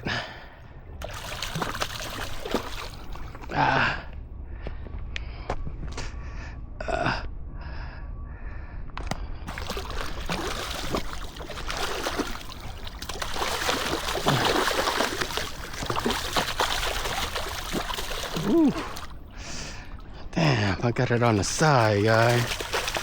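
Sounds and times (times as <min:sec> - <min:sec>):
fish splashing in water: 0:01.0 - 0:03.5, 0:09.5 - 0:19.9, 0:21.1 - 0:23.0.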